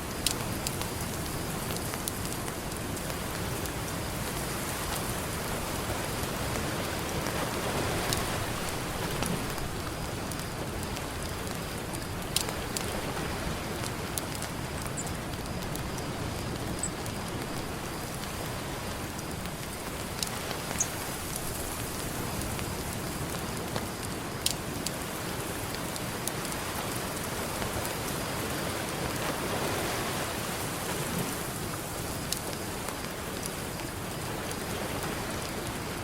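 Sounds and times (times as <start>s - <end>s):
campfire crackling: 0.0s - 36.0s
ocean surf: 4.1s - 11.7s.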